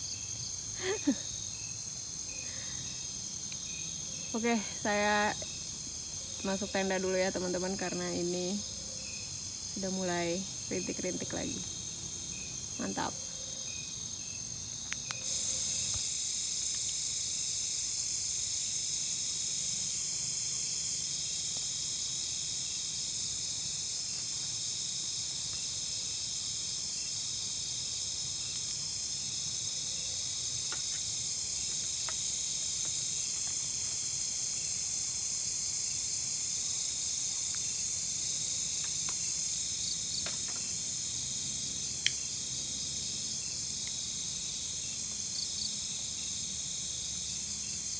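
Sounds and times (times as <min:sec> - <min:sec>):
night insects chirring: 0:00.0 - 0:47.9.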